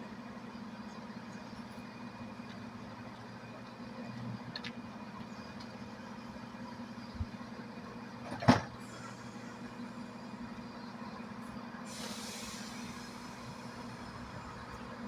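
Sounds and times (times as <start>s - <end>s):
diesel train engine idling: 0.0s - 15.0s
air hissing: 11.9s - 14.1s.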